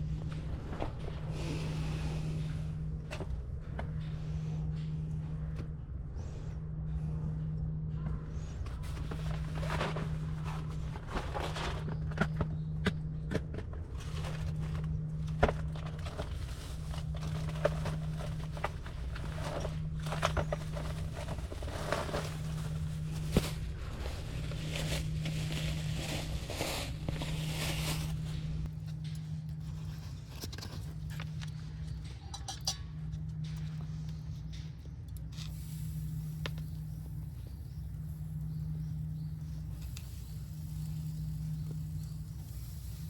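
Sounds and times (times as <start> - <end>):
steady low hum: 0.0 - 43.0
fire hissing: 39.4 - 43.0.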